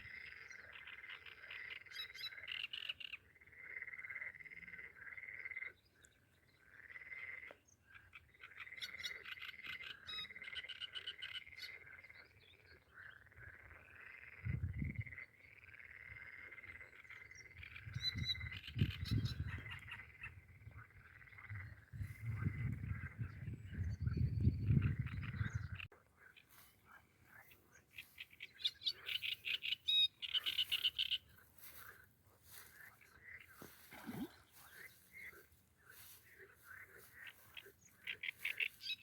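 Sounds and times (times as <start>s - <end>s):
frogs calling: 0.0s - 39.0s
bird chirps: 23.7s - 31.8s.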